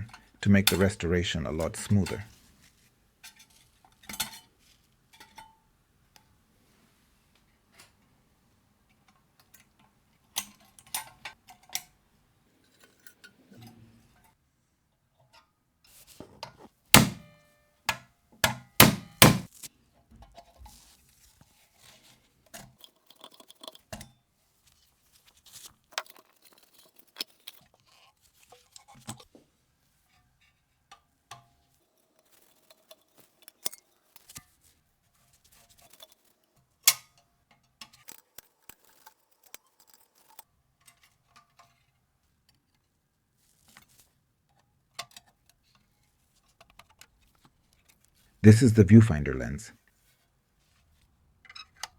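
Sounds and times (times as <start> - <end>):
sharp knock: 17.0 - 17.3, 18.8 - 19.5.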